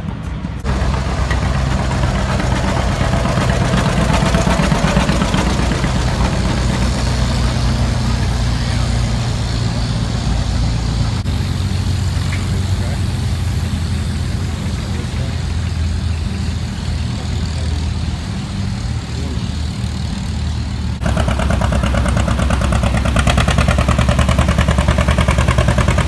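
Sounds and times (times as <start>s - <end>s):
outdoor noise: 0.0s - 26.0s
tractor engine running: 0.0s - 26.0s.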